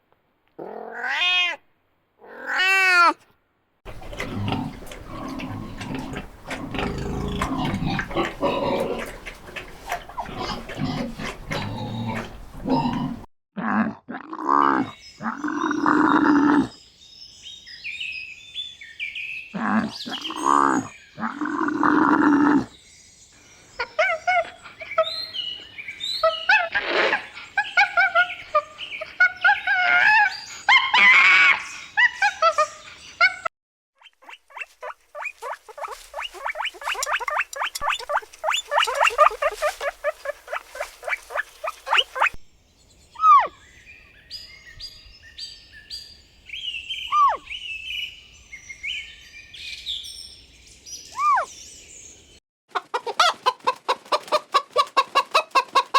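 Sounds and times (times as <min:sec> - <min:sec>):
chirps and squawks: 0:03.9 - 0:13.3, 0:19.5 - 0:22.6, 0:23.8 - 0:33.4, 0:34.0 - 0:42.4, 0:52.8 - 0:55.9
fast pulsing rattle of calls: 0:35.2 - 0:42.4.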